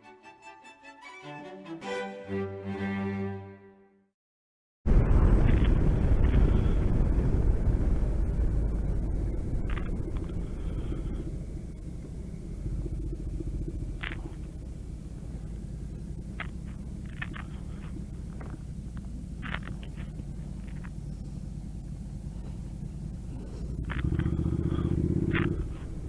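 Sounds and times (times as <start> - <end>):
motorcycle engine rumble: 6.4 - 26.0.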